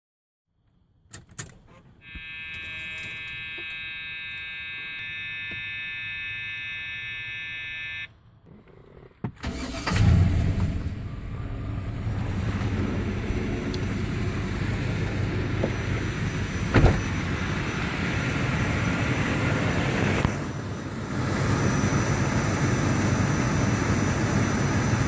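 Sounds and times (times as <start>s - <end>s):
electronic warning chime: 2.0s - 8.1s
car engine cranking and idling: 8.2s - 25.0s.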